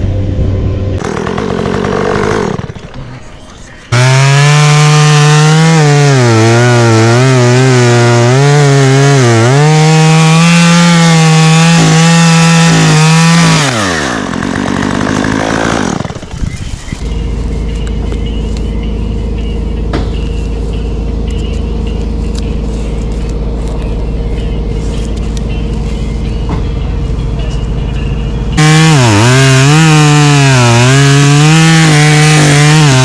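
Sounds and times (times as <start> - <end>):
chainsaw cutting wood: 1.0 - 3.0, 3.9 - 16.4, 28.6 - 33.0.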